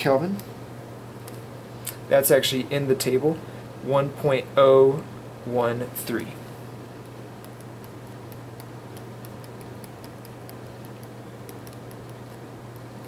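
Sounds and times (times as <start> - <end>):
steady low hum: 0.0 - 13.0
pen writing clicks: 7.4 - 12.9.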